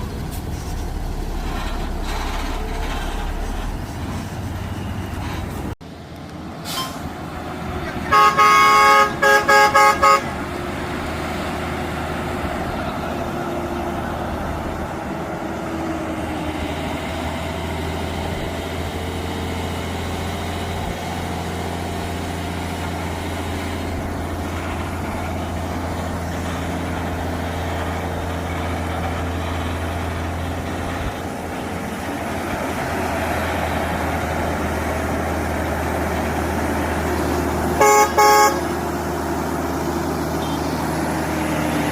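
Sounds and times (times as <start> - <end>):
road noise: 0.0 - 41.9
truck engine droning: 0.0 - 41.9
vehicle horn toots: 8.0 - 10.4, 37.8 - 38.8, 40.4 - 40.8.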